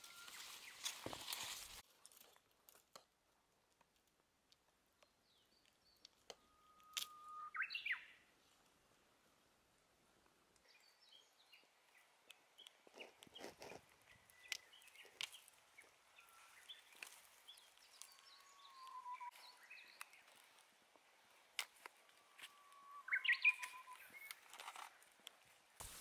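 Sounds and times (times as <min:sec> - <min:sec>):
soft clicks and crackles: 0:00.8 - 0:07.1, 0:11.9 - 0:22.8, 0:23.6 - 0:26.0
birds chirping: 0:05.0 - 0:08.3, 0:10.6 - 0:25.8.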